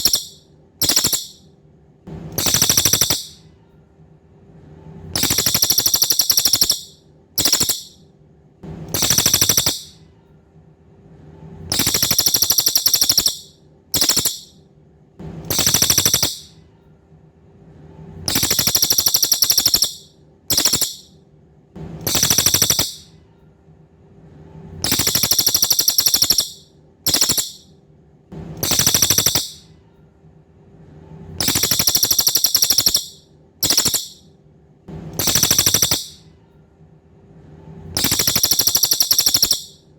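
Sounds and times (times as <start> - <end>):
songbird buzzy trills: 0.0 - 1.4, 2.4 - 3.5, 5.2 - 8.0, 8.9 - 10.0, 11.7 - 14.6, 15.5 - 16.6, 18.3 - 21.1, 22.0 - 23.1, 24.8 - 27.7, 28.6 - 29.7, 31.4 - 34.2, 35.2 - 36.3, 38.0 - 39.8
faint steady hum: 0.0 - 39.9.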